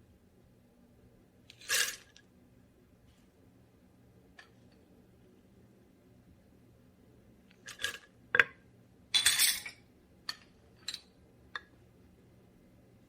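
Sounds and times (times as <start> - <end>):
dishes and utensils clinking: 9.2 - 11.1.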